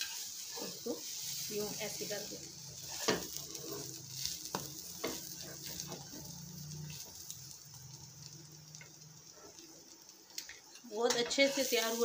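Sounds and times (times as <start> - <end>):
metal spatula scraping a pan: 0.0 - 6.3, 11.1 - 12.0
pancake sizzling in oil: 0.0 - 12.0.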